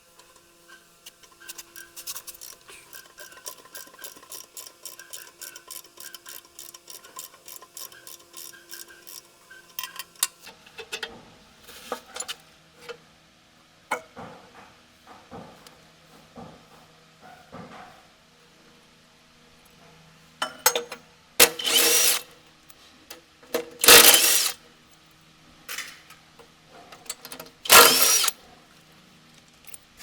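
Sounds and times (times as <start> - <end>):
metal parts clinking: 20.7 - 22.2, 23.6 - 24.6, 27.1 - 28.4
metal-on-metal strokes: 21.4 - 22.2, 23.8 - 24.6, 27.7 - 28.3.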